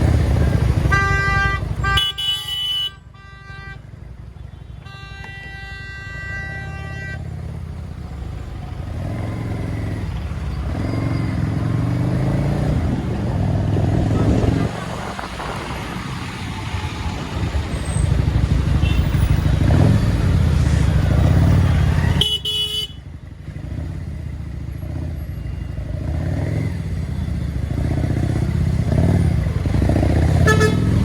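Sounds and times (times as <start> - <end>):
road traffic: 0.0 - 31.0
vehicle horn toot: 0.8 - 3.9, 4.5 - 7.5, 18.7 - 19.4, 22.0 - 23.1, 30.3 - 31.0
motorcycle engine running: 16.7 - 31.0.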